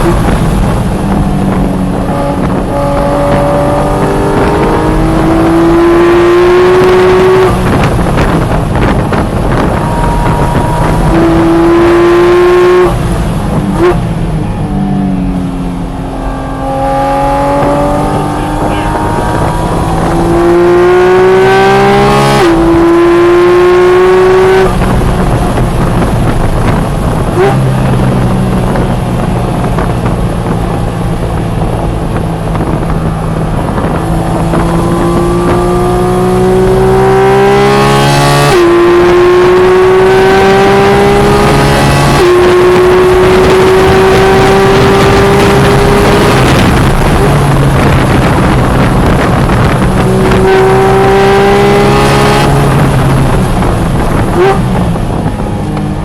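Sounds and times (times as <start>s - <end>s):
car engine accelerating hard: 0.0s - 56.0s.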